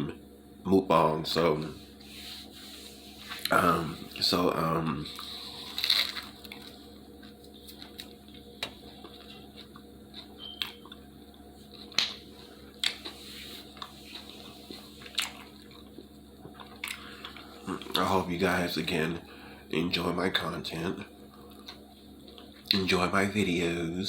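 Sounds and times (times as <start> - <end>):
faint steady hum: 0.0 - 24.0
person chewing food: 5.1 - 18.0, 21.2 - 22.7.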